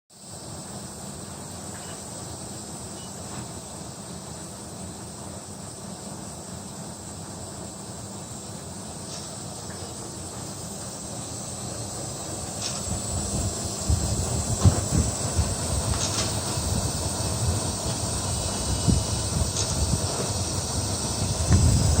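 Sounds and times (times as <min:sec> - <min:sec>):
air conditioner rushing: 0:08.9 - 0:22.0.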